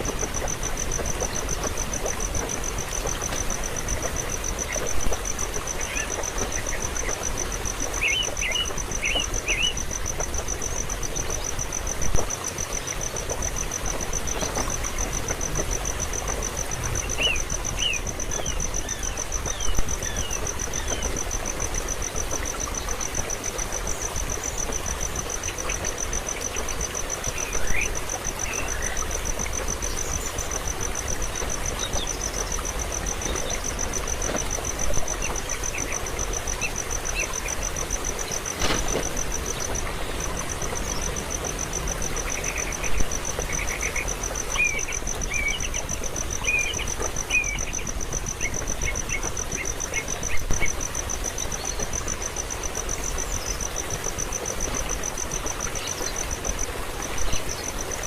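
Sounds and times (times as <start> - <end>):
background hiss: 0.0 - 58.0
insect trill: 0.0 - 58.0.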